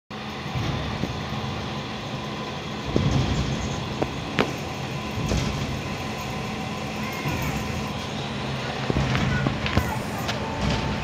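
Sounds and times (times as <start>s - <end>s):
train rumbling: 0.1s - 11.0s.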